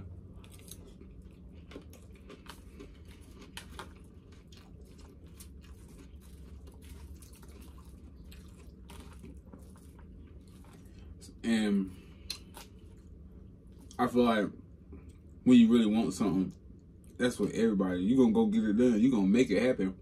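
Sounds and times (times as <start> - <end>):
person chewing food: 0.0 - 14.0
low steady hum: 0.0 - 20.0.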